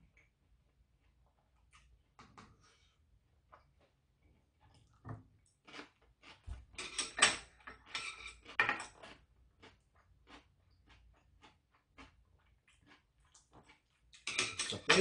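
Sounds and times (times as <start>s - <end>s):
person chewing: 3.4s - 6.7s, 7.6s - 14.3s
metal chopsticks clicking on dishes: 14.2s - 15.0s.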